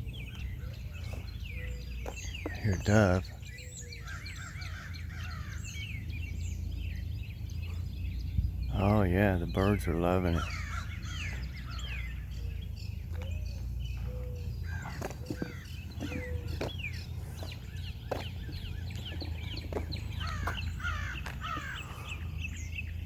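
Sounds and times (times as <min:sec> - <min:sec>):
songbirds chirping and singing: 0:00.0 - 0:23.0
steady low rumble: 0:00.0 - 0:23.0
dove cooing: 0:10.4 - 0:22.7.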